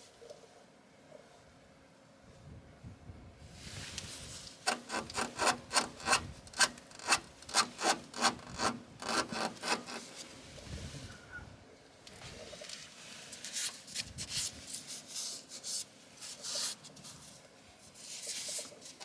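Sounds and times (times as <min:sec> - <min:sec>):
hand scraping back and forth: 0:03.6 - 0:11.3.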